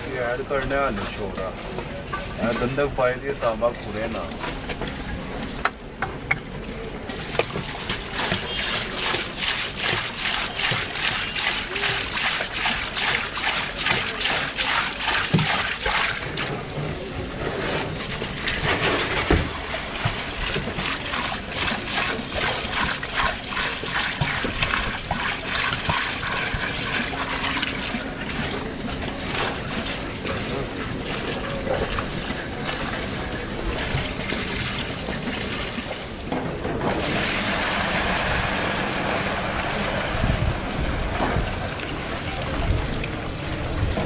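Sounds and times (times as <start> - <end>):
water trickling and splashing: 0.0 - 44.0.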